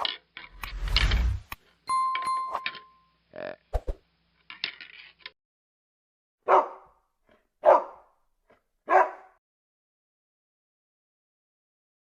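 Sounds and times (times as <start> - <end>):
dog barking: 6.4 - 7.0, 7.6 - 8.1, 8.9 - 9.4.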